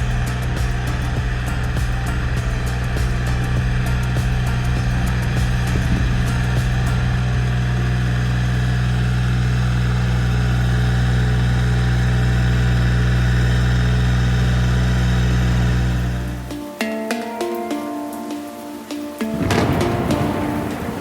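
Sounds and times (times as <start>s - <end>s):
tiller engine running: 0.0s - 16.7s, 19.3s - 21.0s.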